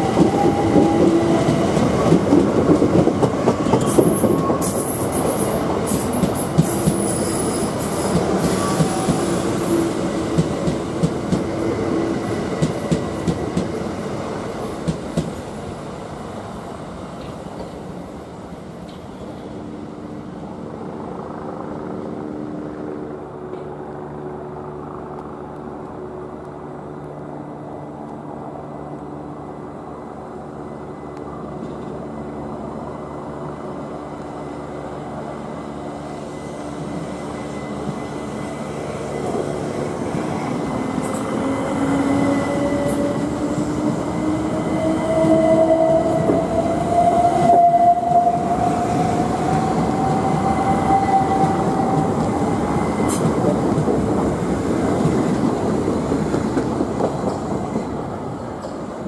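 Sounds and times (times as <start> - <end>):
held tones from trains: 0.0 - 59.0.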